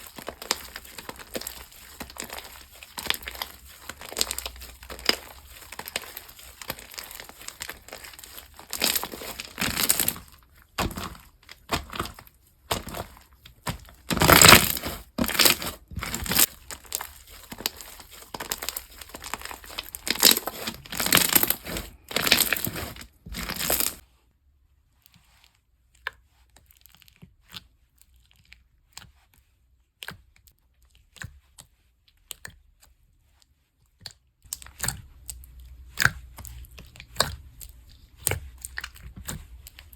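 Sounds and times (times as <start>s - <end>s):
packaging crinkling and tearing: 0.0s - 24.0s.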